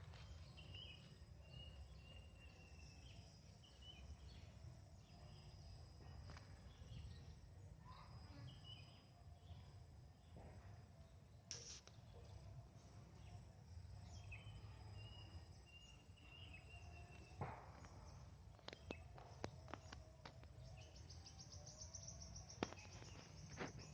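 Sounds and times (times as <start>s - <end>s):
fast pulsing insect trill: 11.5s - 11.9s
sharp clicks: 11.5s - 12.0s.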